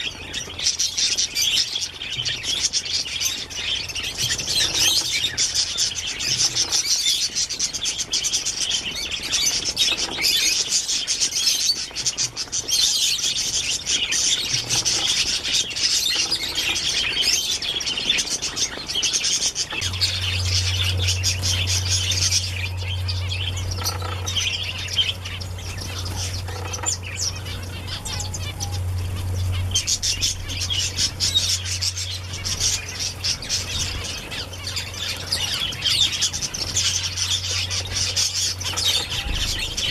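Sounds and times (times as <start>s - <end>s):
small birds chirping: 0.0s - 39.9s
low steady hum: 13.4s - 39.9s.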